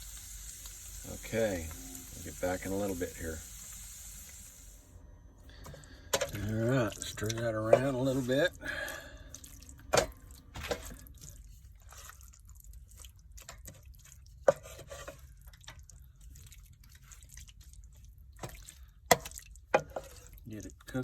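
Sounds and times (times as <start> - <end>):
spoon stirring wet food: 5.5 - 21.0.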